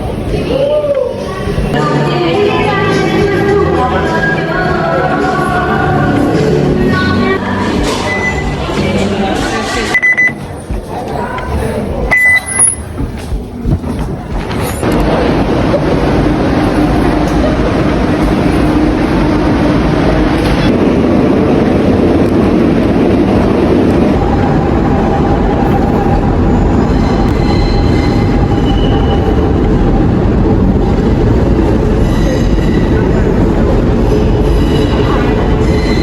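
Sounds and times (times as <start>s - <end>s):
train rumble: 0.0s - 36.0s
wheels squealing on rails: 25.3s - 29.7s, 30.9s - 36.0s.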